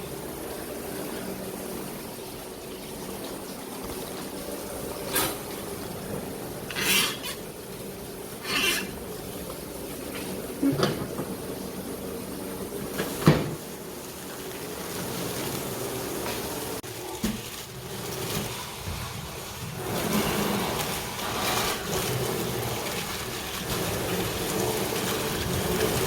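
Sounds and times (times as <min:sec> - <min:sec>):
wood fire crackling: 0:12.2 - 0:26.0.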